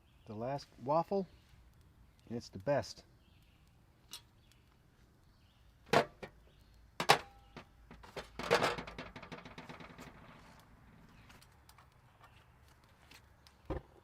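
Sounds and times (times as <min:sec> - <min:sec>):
waffle iron knocking and clanking: 0:07.0 - 0:10.3
metal clatter and scraping: 0:07.9 - 0:10.6.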